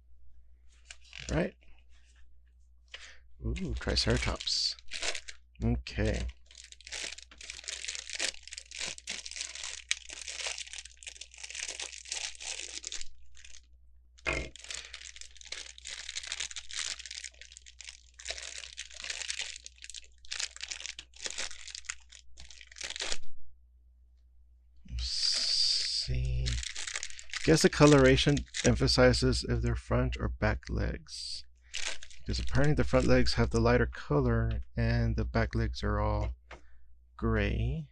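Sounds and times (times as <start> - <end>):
plastic bags crinkling: 0.8 - 1.5, 3.7 - 5.4, 6.0 - 13.7, 14.3 - 23.3, 25.1 - 29.1, 31.7 - 33.5.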